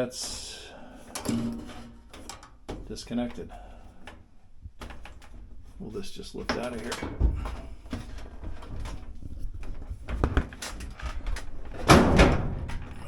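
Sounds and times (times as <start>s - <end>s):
scraping rattle of metal and plastic: 0.0s - 13.0s
knocks and clicks of dryer door: 11.7s - 13.0s.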